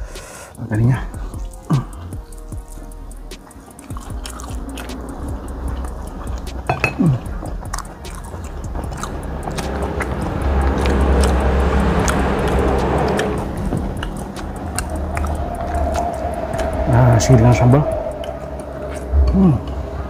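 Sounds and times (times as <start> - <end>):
person chewing meat: 1.2 - 16.8
wet mouth clicks: 1.5 - 16.8.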